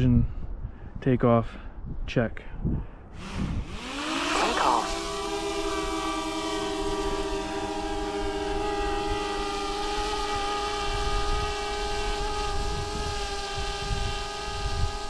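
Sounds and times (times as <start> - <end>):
drone propellers whining: 3.2 - 15.0.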